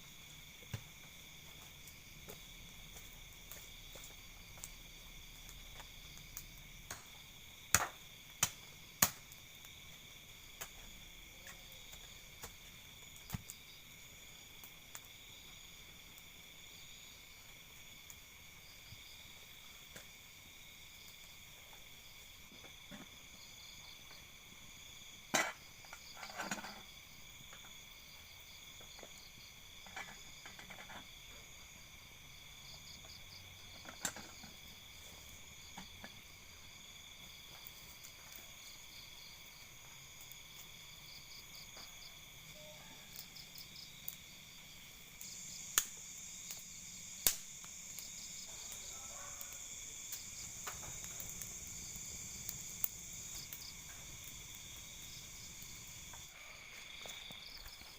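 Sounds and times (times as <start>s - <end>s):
insects chirring: 0.0s - 57.9s.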